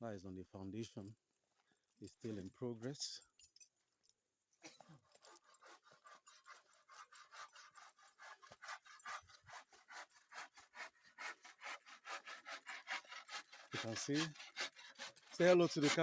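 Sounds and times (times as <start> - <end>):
hand saw cutting wood: 4.7 - 16.0.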